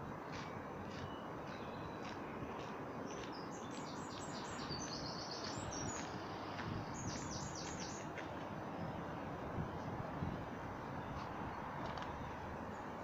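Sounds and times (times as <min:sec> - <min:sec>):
songbird singing high notes: 0:03.1 - 0:06.2, 0:06.9 - 0:08.1.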